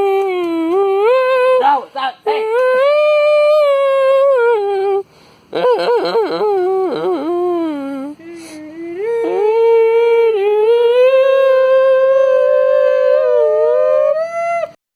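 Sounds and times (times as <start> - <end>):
child wailing sung notes: 5.6 - 14.8.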